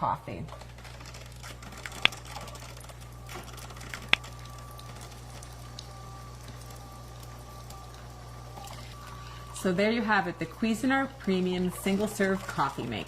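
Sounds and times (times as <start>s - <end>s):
coffee maker humming: 0.0s - 13.0s
faint thin whine: 1.2s - 13.0s
sharp clicks: 1.7s - 2.8s.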